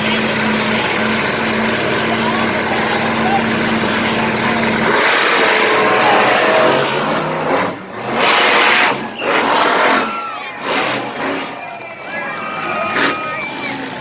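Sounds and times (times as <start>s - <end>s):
monster truck engines roaring: 0.0s - 14.0s.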